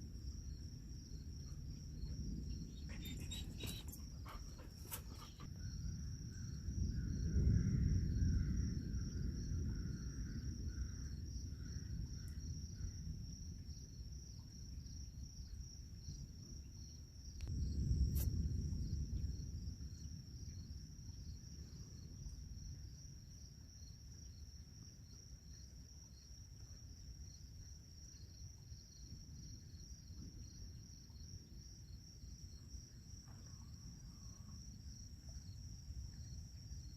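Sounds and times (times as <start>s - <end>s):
insects trilling: 0.5s - 13.1s.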